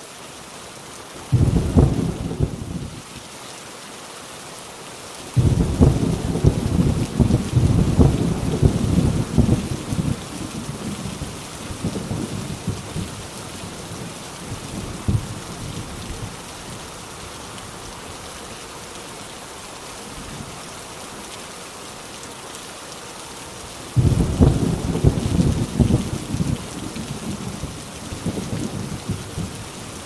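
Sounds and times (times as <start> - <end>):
heavy rain on a tin roof: 0.0 - 30.0
loud thunderclap: 1.3 - 2.8, 5.4 - 11.1, 14.8 - 15.3, 24.0 - 26.7
rolling thunder: 1.3 - 2.9, 5.4 - 13.2, 14.0 - 15.4, 24.0 - 29.6.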